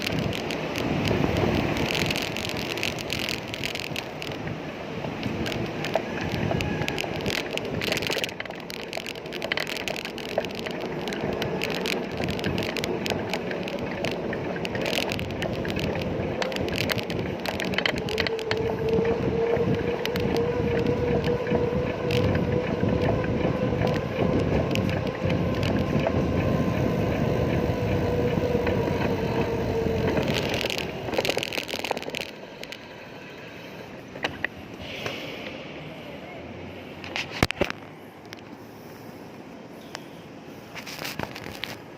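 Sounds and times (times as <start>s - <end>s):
bicycle clicking: 0.0s - 35.1s, 37.0s - 41.9s
bicycle road noise: 0.0s - 41.9s.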